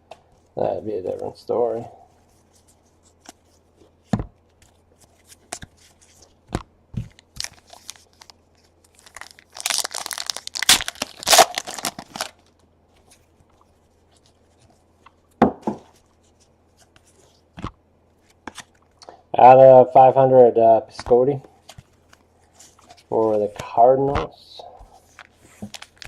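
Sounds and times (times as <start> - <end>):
wrapper tearing and crinkling: 7.2 - 12.5
cards being handled: 21.0 - 26.0.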